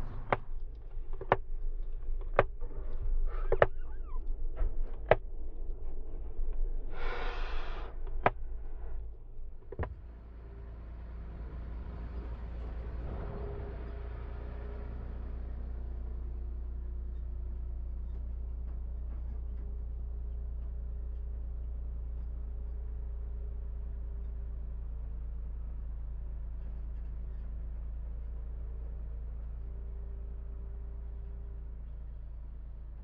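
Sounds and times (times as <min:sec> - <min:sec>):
steady low hum: 0:00.0 - 0:33.0
owl hissing: 0:06.9 - 0:07.9.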